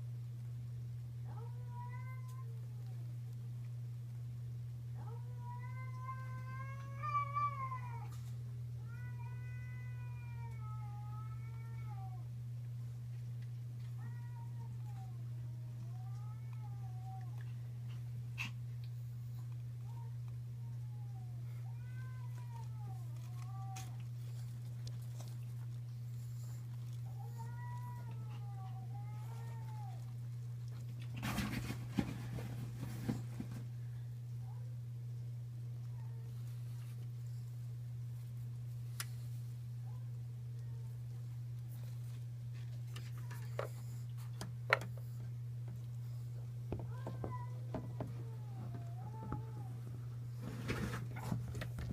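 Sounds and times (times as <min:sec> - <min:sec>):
steady low hum: 0:00.0 - 0:51.9
cat meowing: 0:05.0 - 0:08.2, 0:08.8 - 0:12.2, 0:19.9 - 0:24.5, 0:26.4 - 0:30.2.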